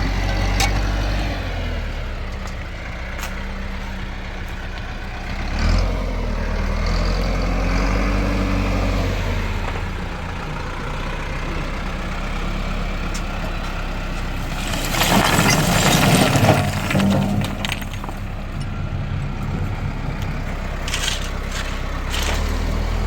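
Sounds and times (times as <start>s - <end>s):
tractor engine humming: 0.0s - 23.0s.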